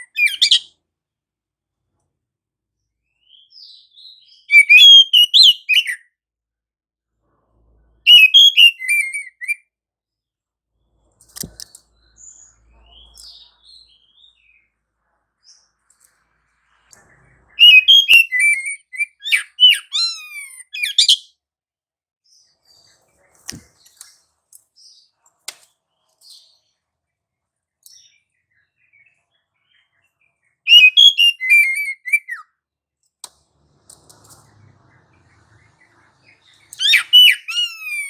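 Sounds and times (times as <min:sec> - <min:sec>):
bird singing high whistles: 0:00.0 - 0:00.7, 0:03.2 - 0:06.0, 0:08.1 - 0:09.6, 0:17.5 - 0:21.3, 0:30.7 - 0:32.5, 0:35.5 - 0:38.0
sharp clicks: 0:11.2 - 0:11.8
faint bird calls: 0:34.1 - 0:38.0.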